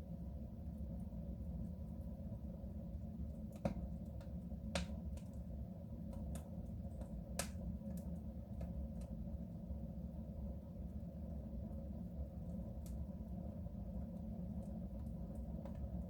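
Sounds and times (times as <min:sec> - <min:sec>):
wood fire crackling and popping: 0:03.4 - 0:09.1.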